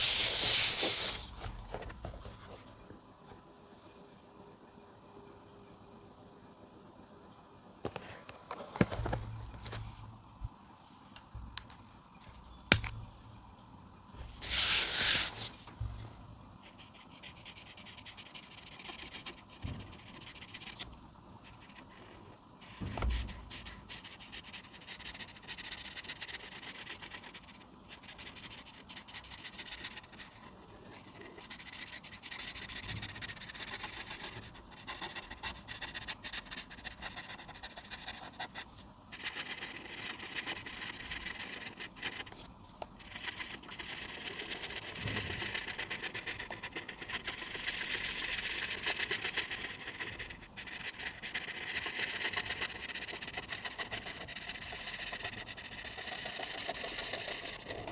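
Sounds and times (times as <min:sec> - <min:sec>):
coloring tool scratching paper: 0:00.0 - 0:01.3, 0:14.4 - 0:15.6, 0:16.6 - 0:20.8, 0:21.4 - 0:42.4, 0:43.0 - 0:57.9.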